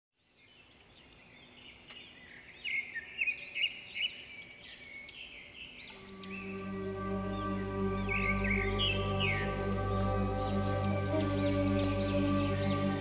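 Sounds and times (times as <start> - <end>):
birds chirping and calling: 0.4 - 13.0.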